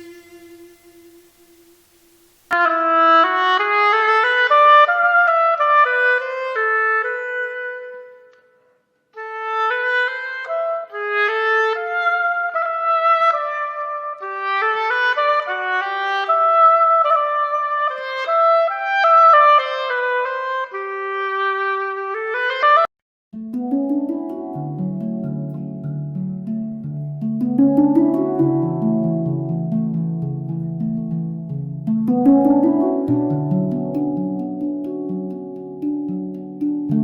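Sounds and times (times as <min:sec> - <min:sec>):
reedy wind instrument melody: 0:00.0 - 0:01.9.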